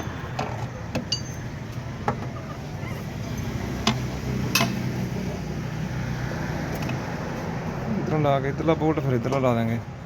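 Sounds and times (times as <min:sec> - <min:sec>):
metal tools clinking: 0:01.1 - 0:01.5.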